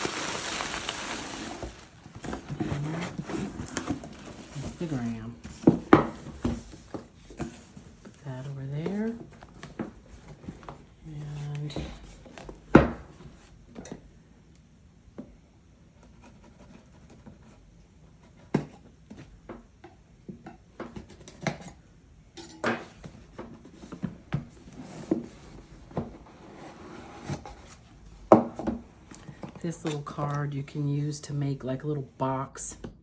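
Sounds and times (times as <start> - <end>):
packing rustling: 0.0 - 5.4.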